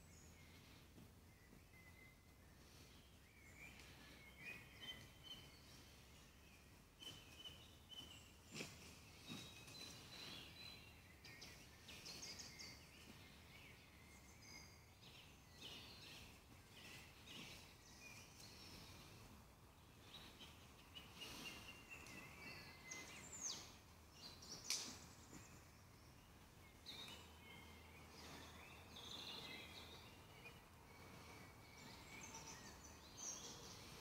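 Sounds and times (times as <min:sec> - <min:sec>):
faint songbirds chirping: 0:00.0 - 0:34.0.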